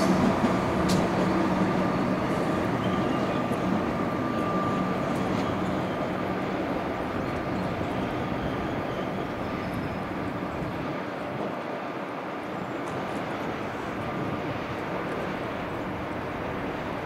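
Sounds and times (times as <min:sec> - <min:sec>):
electric train passing: 0:00.0 - 0:17.0.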